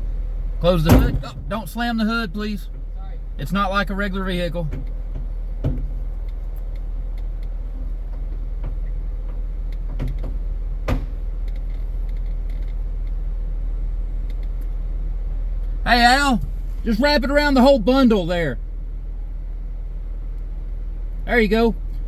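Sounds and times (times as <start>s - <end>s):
engine idling: 0.0s - 22.0s
sharp knock: 0.9s - 1.7s
light clicks: 14.2s - 14.8s.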